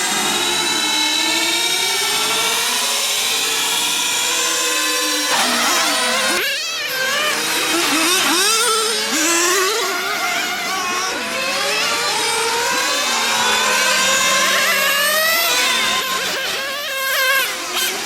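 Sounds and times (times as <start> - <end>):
model car engines revving: 0.0 - 18.0.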